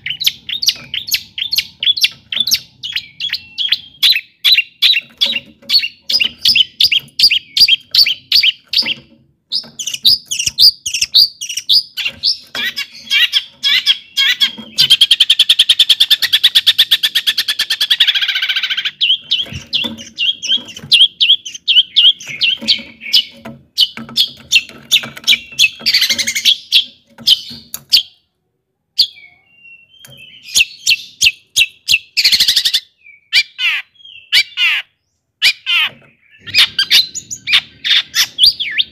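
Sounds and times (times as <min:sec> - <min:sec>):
bird chirping: 0:00.0 - 0:38.9.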